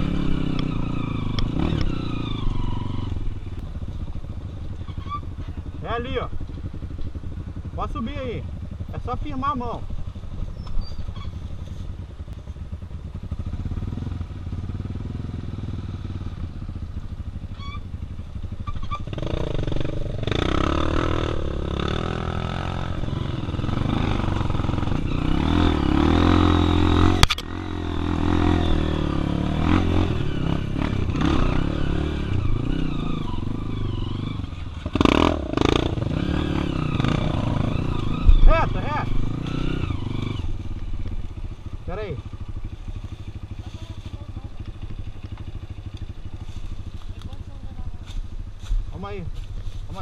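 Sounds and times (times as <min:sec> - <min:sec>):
motorcycle engine running: 0:00.0 - 0:50.0
sharp click: 0:27.2 - 0:27.5.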